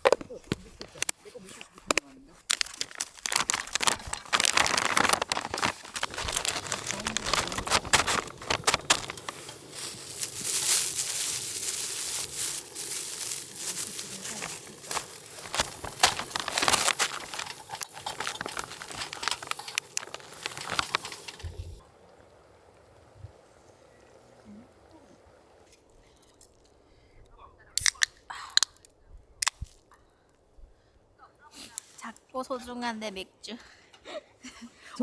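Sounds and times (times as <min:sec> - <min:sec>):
plastic packaging crinkling and tearing: 0:00.0 - 0:21.8.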